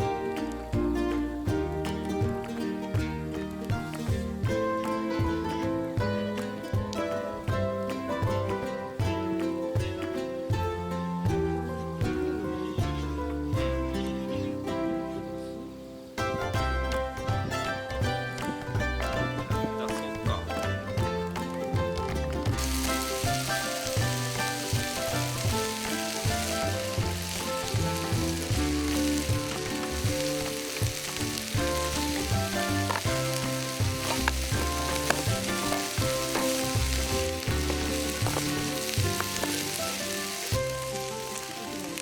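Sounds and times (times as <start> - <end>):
background music with bass line: 0.0 - 42.0
food sizzling in a pan: 22.6 - 42.0.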